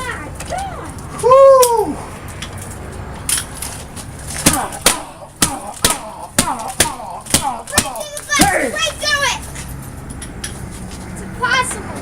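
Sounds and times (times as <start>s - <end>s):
blows striking glass window: 4.3s - 9.6s.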